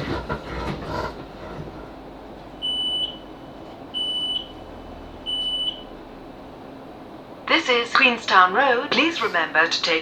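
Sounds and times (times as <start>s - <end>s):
train low hum: 0.0s - 10.0s
high-pitched train door beeps: 2.6s - 3.3s, 4.0s - 4.6s, 5.3s - 5.9s.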